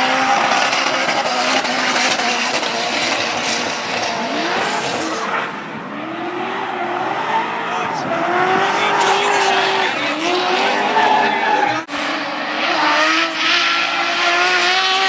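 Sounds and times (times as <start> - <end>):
car engines revving: 0.0 - 15.0
tyres squealing and skidding: 6.0 - 11.9.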